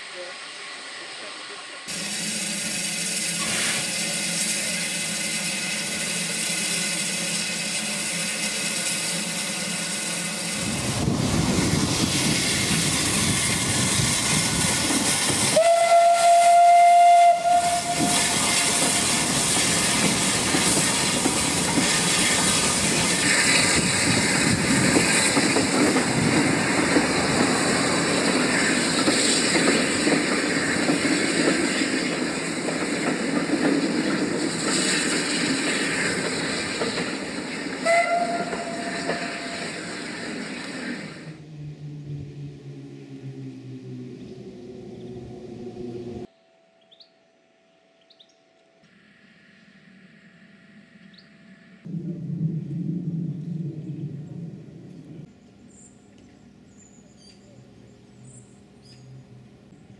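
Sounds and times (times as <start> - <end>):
train rumble and rail clatter: 0.0 - 46.3, 51.8 - 59.9
train whistle blast: 15.5 - 19.2, 37.8 - 39.7.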